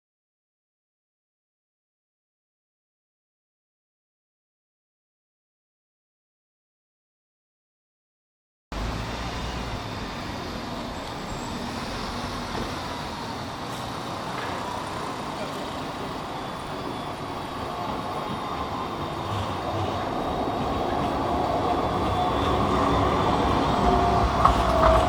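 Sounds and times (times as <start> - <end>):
tram rumbling on rails: 8.7 - 25.0.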